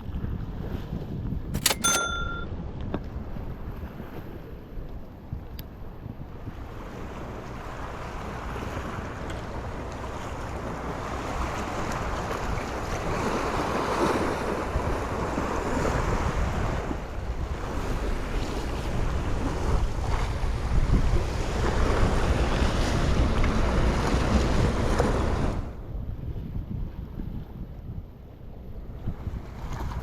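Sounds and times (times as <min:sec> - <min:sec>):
wind buffeting the microphone: 0:11.4 - 0:30.0.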